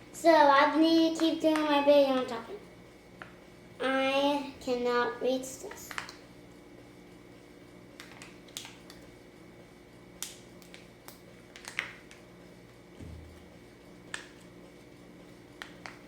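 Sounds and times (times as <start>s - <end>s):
small objects clicking and tapping: 5.7s - 6.2s, 10.2s - 12.2s, 14.1s - 14.4s.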